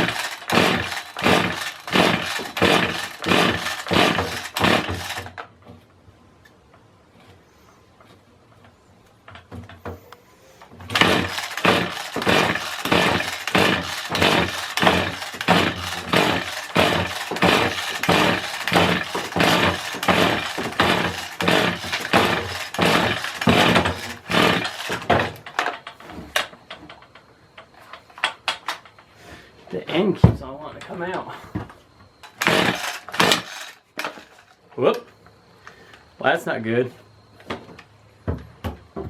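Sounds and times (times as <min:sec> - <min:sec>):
recoil starter rasping: 0:00.0 - 0:05.4, 0:10.7 - 0:29.0, 0:32.2 - 0:34.4.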